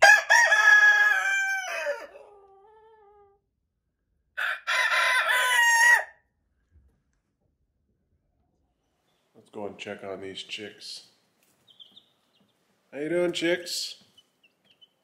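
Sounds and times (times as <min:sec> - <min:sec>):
rooster crowing: 0:00.0 - 0:03.4, 0:04.4 - 0:06.2.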